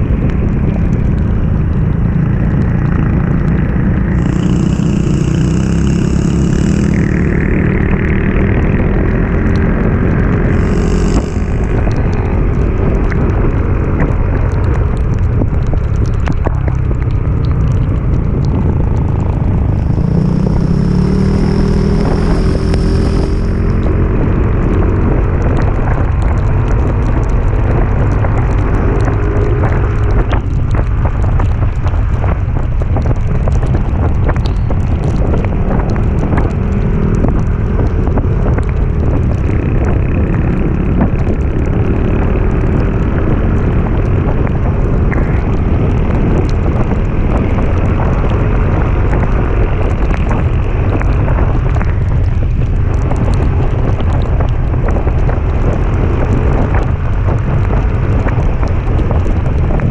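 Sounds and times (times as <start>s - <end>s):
vehicle engine rumble: 0.0s - 59.9s
wind buffeting microphone: 0.0s - 59.9s.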